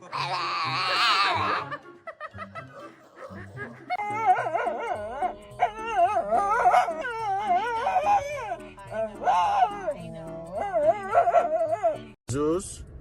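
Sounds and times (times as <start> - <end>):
dog howling and whining: 0.0 - 1.7, 3.9 - 12.2.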